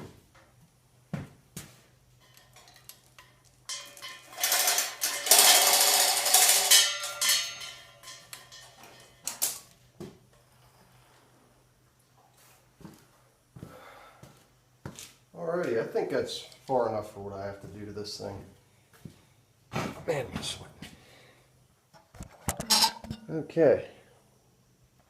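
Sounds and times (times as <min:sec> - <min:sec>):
metal rattling scrape: 0:02.2 - 0:09.6, 0:22.2 - 0:23.2.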